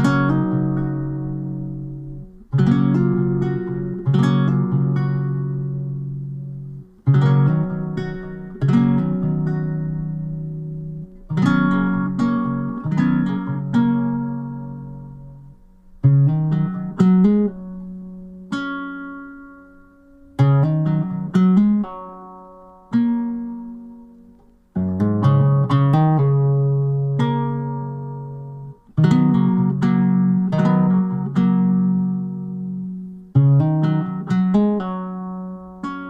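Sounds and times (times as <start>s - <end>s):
acoustic guitar picking: 0.0s - 36.0s.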